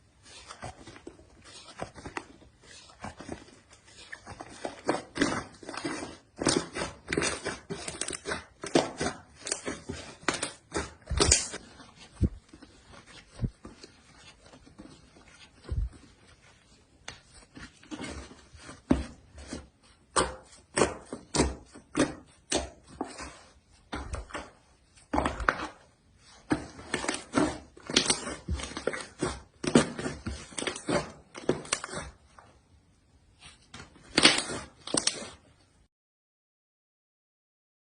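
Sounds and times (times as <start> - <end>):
slime squishing and popping: 10.4 - 11.6.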